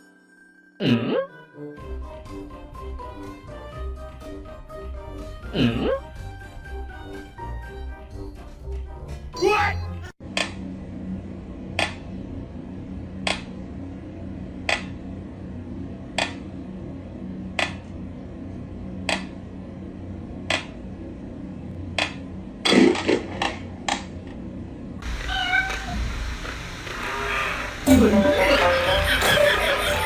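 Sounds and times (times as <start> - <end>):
steady low hum: 10.2 - 30.0
cat crying: 25.0 - 26.2.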